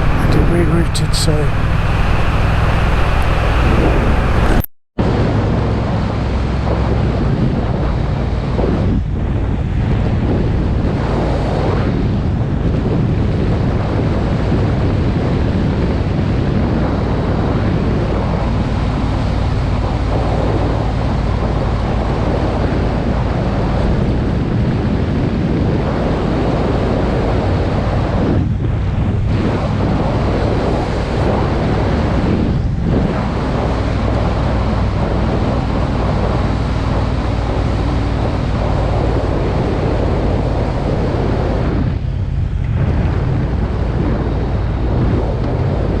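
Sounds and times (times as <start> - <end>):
motorcycle engine running: 0.0 - 4.7
wind buffeting microphone: 0.0 - 46.0.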